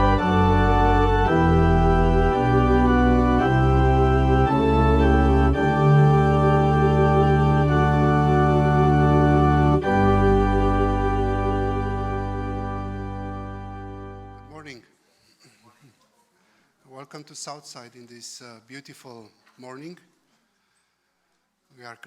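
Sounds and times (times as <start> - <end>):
organ playing sustained chords: 0.0 - 14.7.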